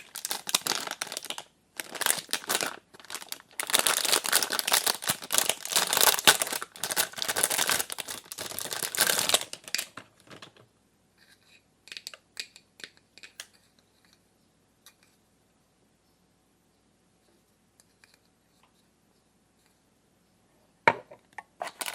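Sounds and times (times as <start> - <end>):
packaging crinkling and tearing: 0.0 - 10.6, 21.6 - 21.9.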